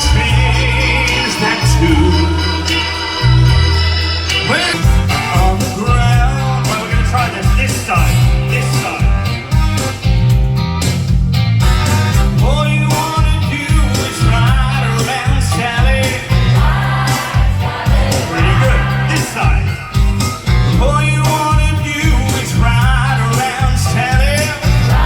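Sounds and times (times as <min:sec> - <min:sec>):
person singing: 0:00.0 - 0:03.5, 0:17.1 - 0:19.8
live band playing: 0:00.0 - 0:25.0
drum beat: 0:04.7 - 0:25.0.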